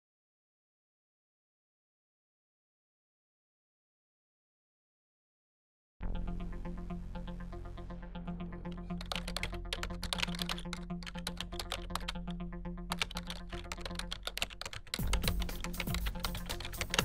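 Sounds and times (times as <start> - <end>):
background music: 6.0 - 17.0
computer keyboard typing: 8.9 - 12.2, 12.9 - 17.0.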